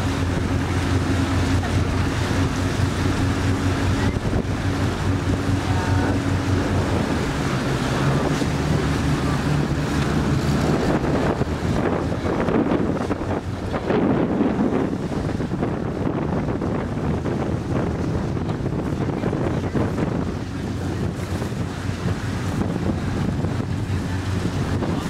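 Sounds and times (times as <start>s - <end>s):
boat engine running: 0.0s - 25.0s
wind buffeting microphone: 0.0s - 25.0s.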